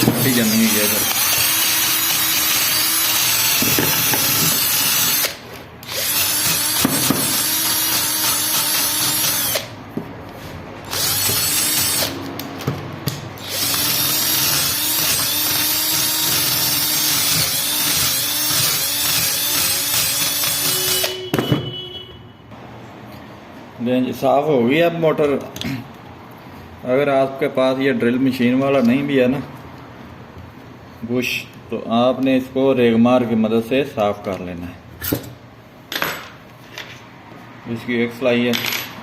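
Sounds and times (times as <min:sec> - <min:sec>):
electric drill wire brush scrubbing: 0:00.0 - 0:09.7, 0:10.9 - 0:12.2, 0:13.4 - 0:21.1.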